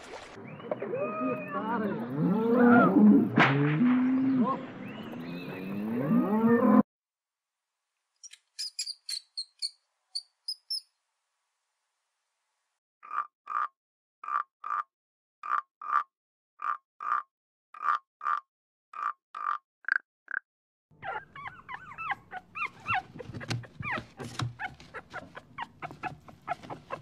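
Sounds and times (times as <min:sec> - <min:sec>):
rat squeaking: 0:08.2 - 0:10.9, 0:21.0 - 0:27.0.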